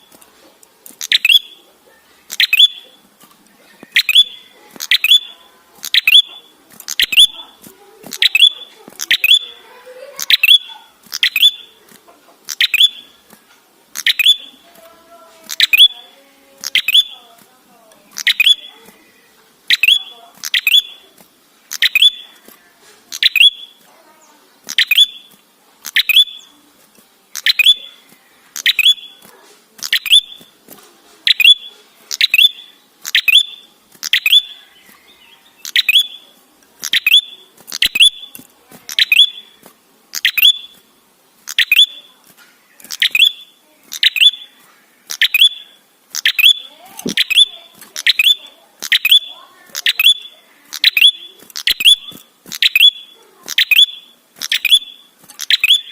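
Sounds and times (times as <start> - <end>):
bird chirping sharply: 1.0 - 1.7, 2.3 - 3.0, 3.9 - 9.6, 10.2 - 11.8, 12.5 - 13.2, 14.0 - 14.6, 15.5 - 17.2, 18.1 - 18.8, 19.7 - 21.1, 21.7 - 22.4, 23.1 - 23.8, 24.7 - 26.5, 27.4 - 28.0, 28.6 - 29.2, 29.8 - 30.5, 31.3 - 39.6, 40.2 - 40.8, 41.5 - 42.1, 42.9 - 55.9.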